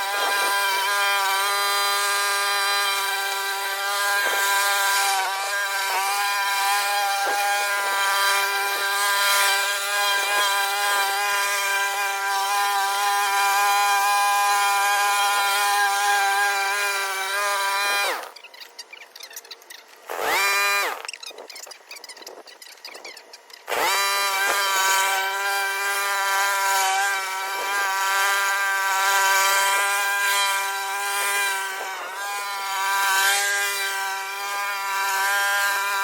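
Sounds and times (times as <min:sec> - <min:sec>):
lawn mower engine running: 0:00.0 - 0:33.2.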